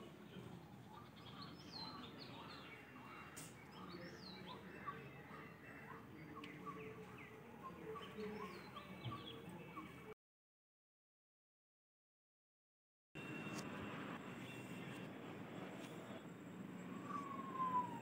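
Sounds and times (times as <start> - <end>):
small birds chirping: 0.0 - 10.1, 16.9 - 18.0
low outdoor background noise: 0.0 - 10.2, 13.2 - 18.0.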